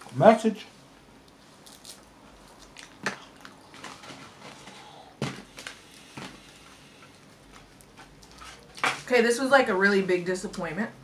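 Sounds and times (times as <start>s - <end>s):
quiet chewing: 1.2s - 4.0s.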